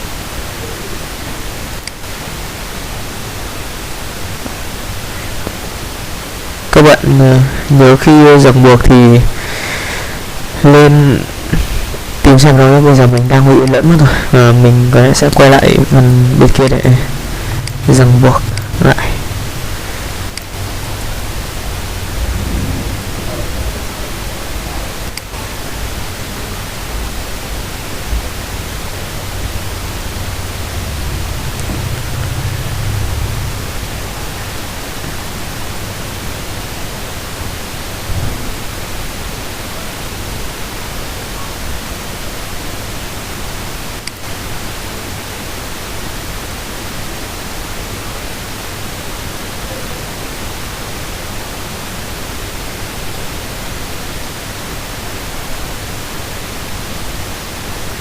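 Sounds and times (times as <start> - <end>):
microphone hiss: 0.0 - 58.0
low rumble: 16.6 - 35.0
low bump: 20.8 - 25.2, 30.2 - 34.5.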